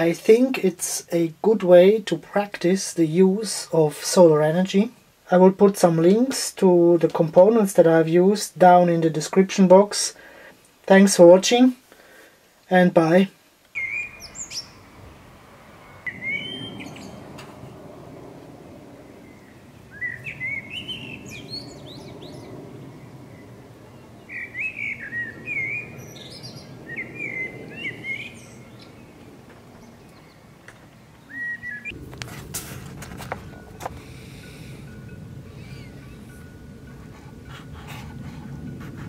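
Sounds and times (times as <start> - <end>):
songbird chirping: 13.0 - 17.8, 18.8 - 32.0, 33.4 - 36.8
low background rumble: 14.2 - 39.0.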